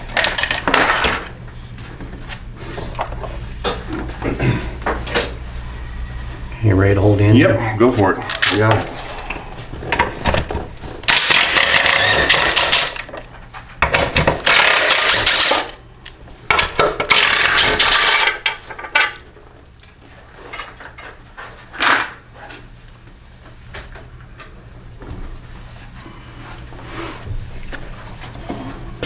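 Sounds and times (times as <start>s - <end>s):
power tool bursts: 11.0s - 13.1s, 14.4s - 15.8s, 17.1s - 18.4s.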